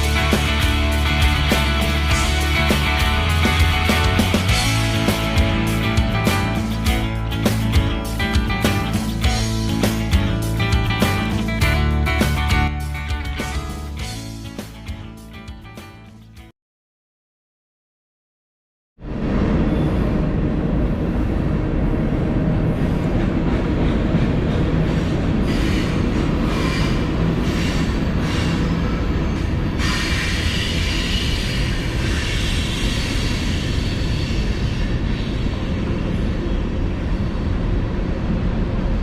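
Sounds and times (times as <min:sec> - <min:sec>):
high-pitched squealing hiss: 0:29.8 - 0:35.5.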